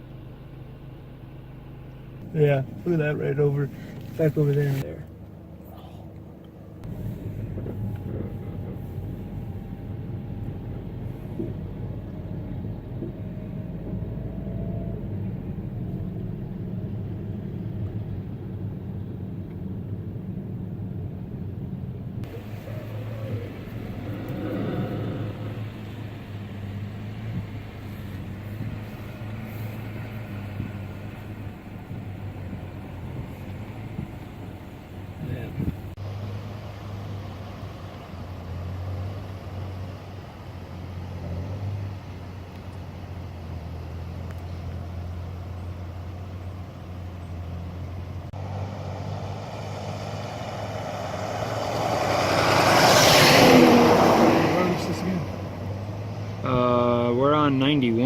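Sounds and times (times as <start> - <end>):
car engine and road hum: 0.0 - 58.0
vehicle rushing past: 22.2 - 42.4, 48.3 - 58.0.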